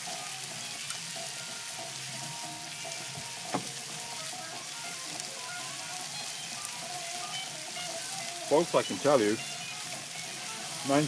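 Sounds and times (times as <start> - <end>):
curry sizzling in a skillet: 0.0 - 11.0
sharp tap: 3.5 - 3.7.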